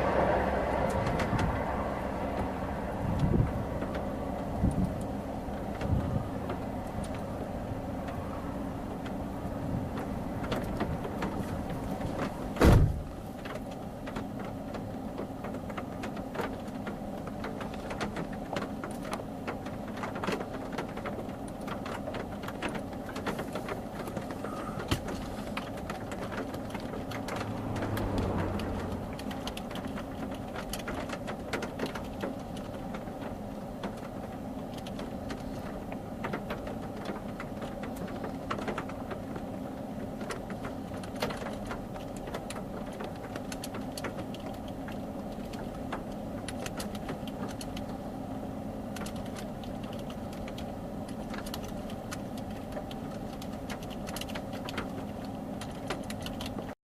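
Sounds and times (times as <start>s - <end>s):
vehicle hum: 0.0s - 56.8s
loud thump: 12.6s - 13.1s.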